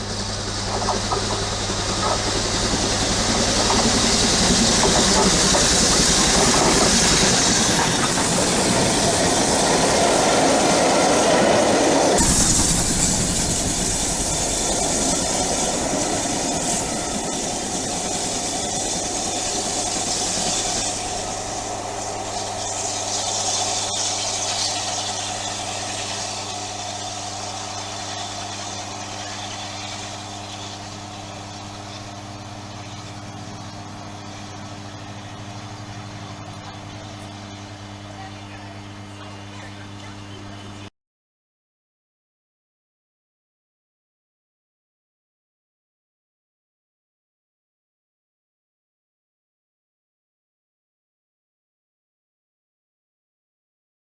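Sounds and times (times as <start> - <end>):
train passing with wheels clacking: 0.0 - 37.2.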